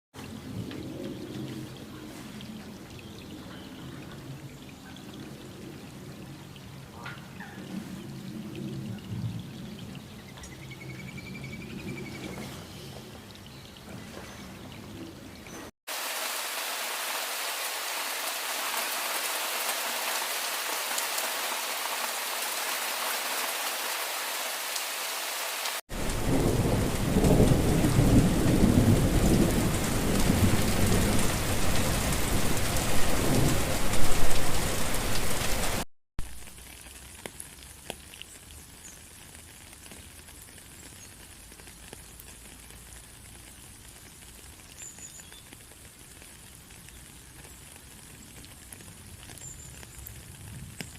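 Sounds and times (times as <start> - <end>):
heavy rain: 0.2 - 10.6, 15.9 - 50.9
low thunder rumbling: 25.9 - 35.6.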